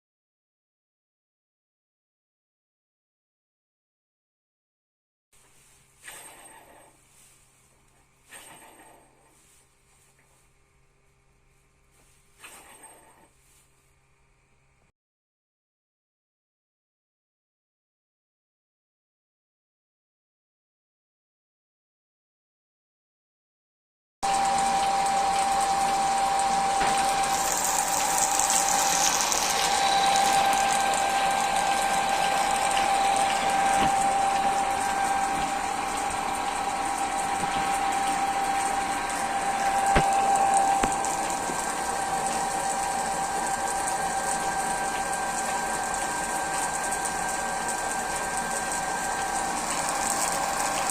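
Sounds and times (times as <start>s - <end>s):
lathe motor whine: 24.3s - 50.9s.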